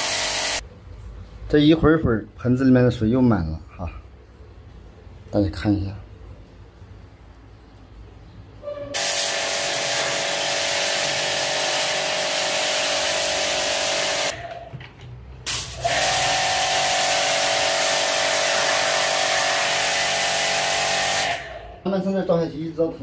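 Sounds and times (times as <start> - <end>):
pressure washer spray hissing: 0.0 - 0.6, 9.0 - 14.4, 15.5 - 21.6.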